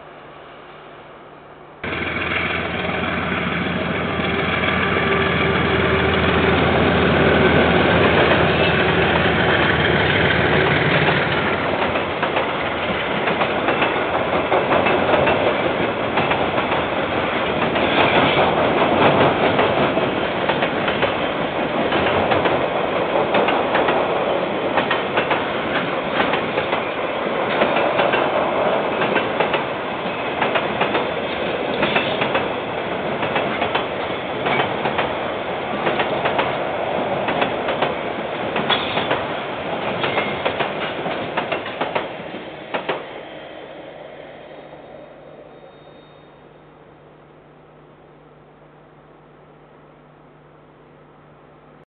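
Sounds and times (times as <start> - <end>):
train wheels clattering over rail joints: 8.0 - 24.1, 24.7 - 32.6, 33.2 - 36.6, 37.2 - 43.1.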